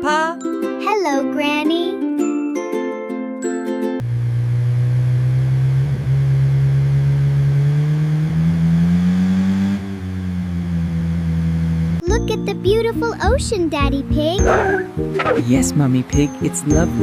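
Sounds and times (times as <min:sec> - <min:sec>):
cartoon car engine humming: 0:04.0 - 0:17.0
short music: 0:14.3 - 0:17.0.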